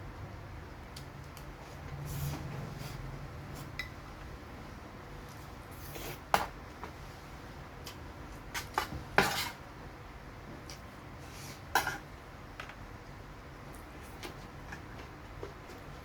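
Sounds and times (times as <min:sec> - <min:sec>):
utensils clinking against a dish: 0:11.7 - 0:12.1.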